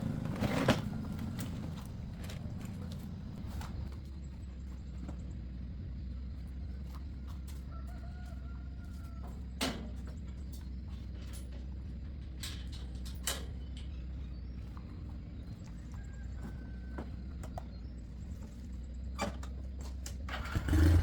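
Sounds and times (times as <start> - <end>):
rooster crowing: 7.6 - 9.4, 15.8 - 17.3.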